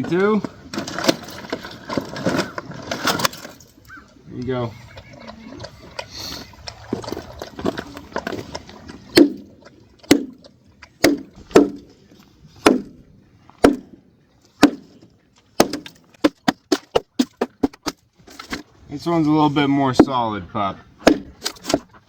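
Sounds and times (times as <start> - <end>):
hollow knocks on frozen container: 9.2 - 9.5, 10.1 - 10.4, 11.0 - 11.9, 12.6 - 13.0, 13.6 - 14.0, 14.6 - 15.0, 15.6 - 18.6.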